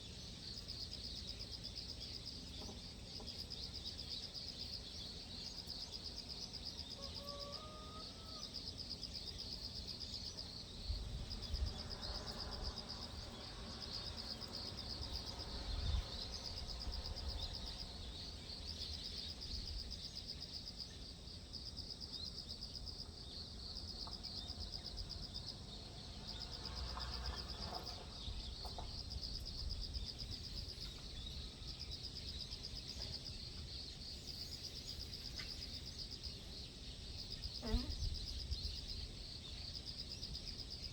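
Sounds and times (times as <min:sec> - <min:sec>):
wind rumble on microphone: 0:10.8 - 0:13.0, 0:15.2 - 0:18.0, 0:37.7 - 0:39.2
pulsing insect trill: 0:37.2 - 0:39.4.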